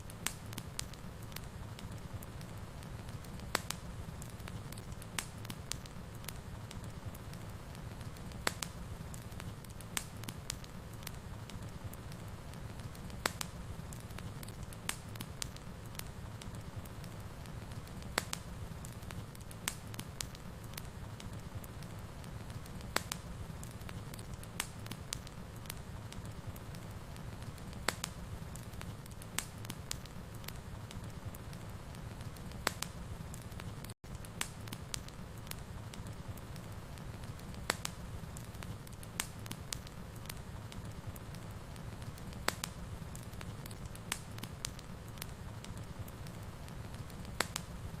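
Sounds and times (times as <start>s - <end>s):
sharp pops of fire: 0.0s - 48.0s
wood fire crackling: 0.0s - 48.0s.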